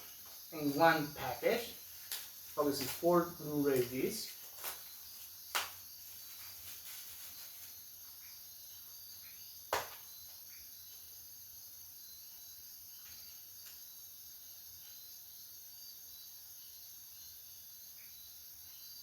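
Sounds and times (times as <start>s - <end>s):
faint high hiss: 0.0s - 8.3s.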